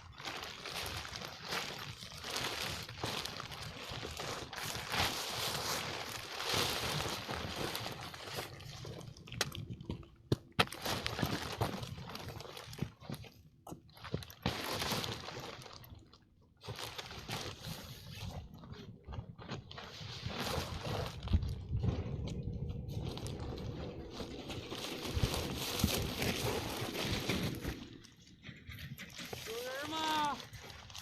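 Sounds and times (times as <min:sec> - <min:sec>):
rustling and crinkling handling: 0:00.0 - 0:31.0.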